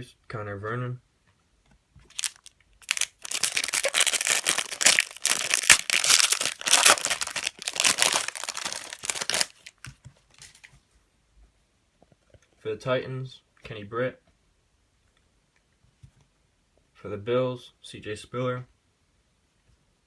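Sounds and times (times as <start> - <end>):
foil wrapper tearing and crinkling: 2.1 - 10.6.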